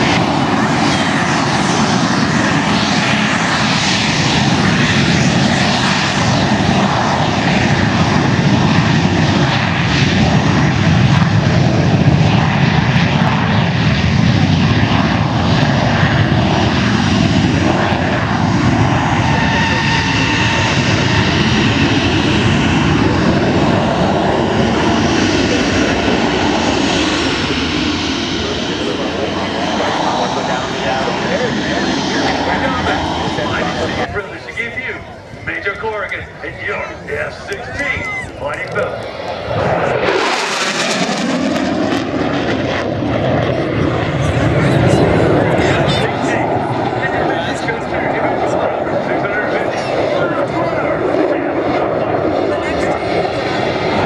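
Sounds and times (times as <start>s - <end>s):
aircraft engine noise: 0.0s - 54.0s.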